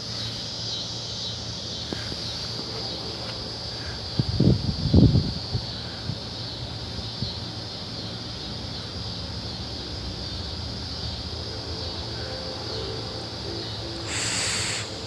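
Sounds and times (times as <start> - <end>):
wind on microphone: 4.0 - 6.2
high-pitched drone: 10.8 - 15.0.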